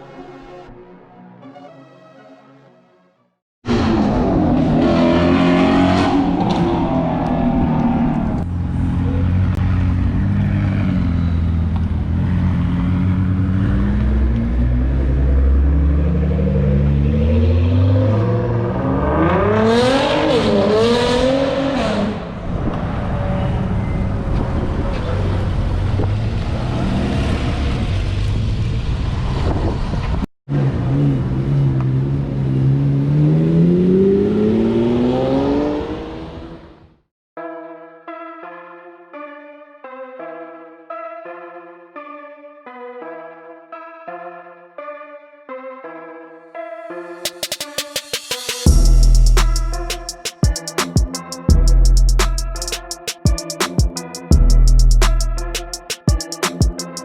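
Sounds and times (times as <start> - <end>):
car engines revving: 3.7 - 36.9.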